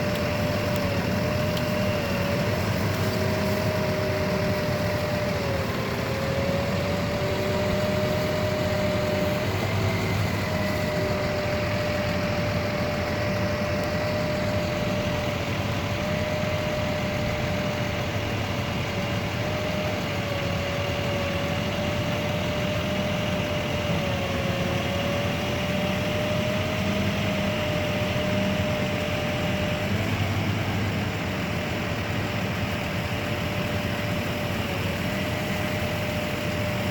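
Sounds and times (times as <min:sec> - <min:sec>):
truck engine running: 0:00.0 - 0:36.9
wavering engine whine: 0:00.0 - 0:36.9.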